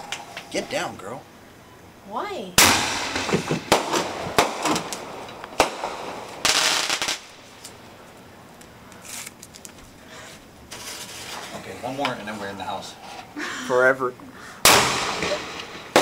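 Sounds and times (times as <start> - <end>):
faint fireworks crackles: 0.0 - 1.2, 2.3 - 13.5, 14.4 - 16.0
fireworks cracking: 2.6 - 10.0, 14.6 - 16.0.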